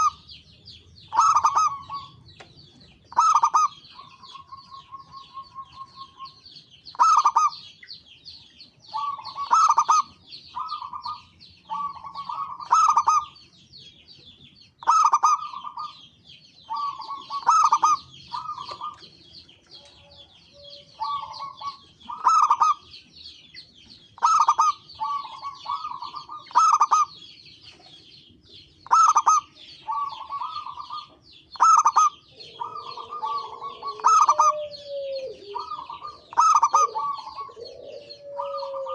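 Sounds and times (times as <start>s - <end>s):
dove cooing: 0.0s - 0.3s, 1.1s - 2.2s, 3.1s - 7.7s, 8.8s - 13.4s, 14.8s - 16.0s, 16.7s - 19.1s, 19.8s - 22.9s, 24.2s - 28.0s, 28.8s - 38.9s.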